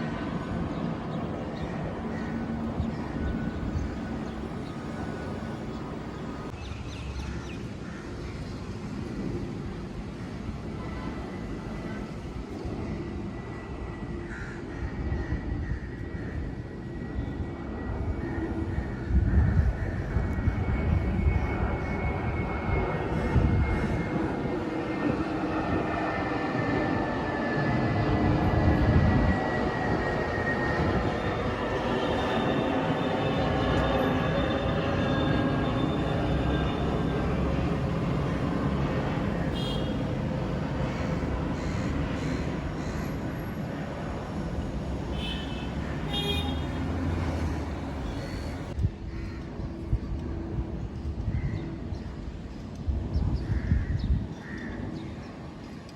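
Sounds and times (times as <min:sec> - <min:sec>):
jet engines rumbling and whining: 0:00.0 - 0:55.9
thin engine whine: 0:20.8 - 0:43.6.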